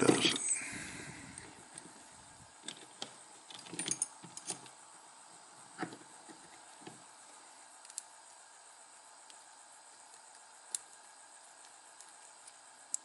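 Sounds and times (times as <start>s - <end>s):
small metal parts clicking: 2.6s - 4.7s.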